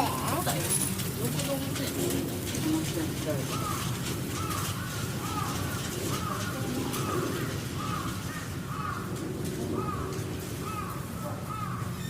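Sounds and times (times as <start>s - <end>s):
crow cawing: 3.4s - 12.0s.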